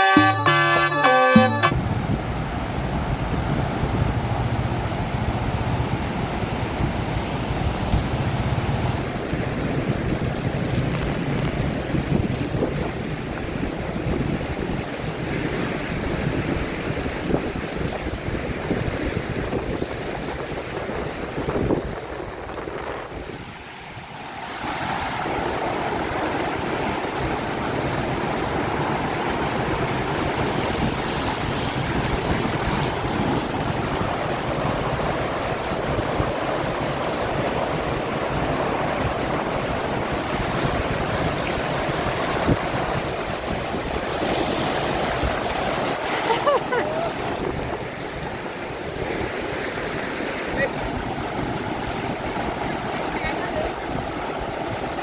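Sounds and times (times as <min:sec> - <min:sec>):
waterfall rushing: 0:00.0 - 0:09.4, 0:23.0 - 0:55.0.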